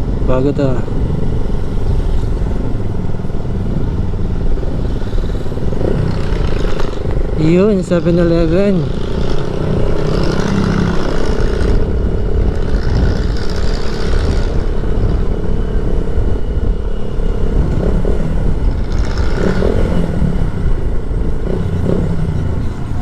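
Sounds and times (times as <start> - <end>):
low wind rumble: 0.0 - 23.0
motorcycle engine running: 0.0 - 23.0.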